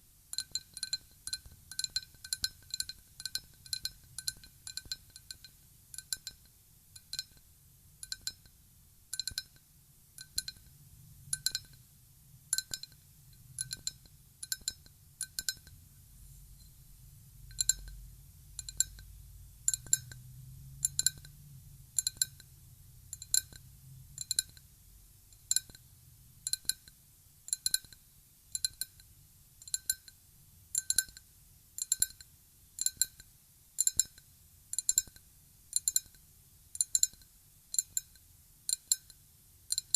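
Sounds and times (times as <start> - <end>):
glass being tapped lightly: 0.4 - 7.4, 8.0 - 8.6, 9.2 - 9.6, 10.2 - 10.7, 11.3 - 11.8, 12.5 - 15.8, 17.5 - 18.0, 18.6 - 19.1, 19.7 - 20.2, 23.1 - 23.6, 24.2 - 24.6, 25.4 - 25.8, 28.6 - 29.0.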